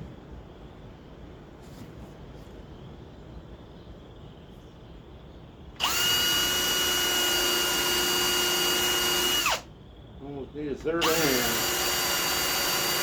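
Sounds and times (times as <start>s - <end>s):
electric drill whining: 5.8s - 9.7s, 11.0s - 13.0s.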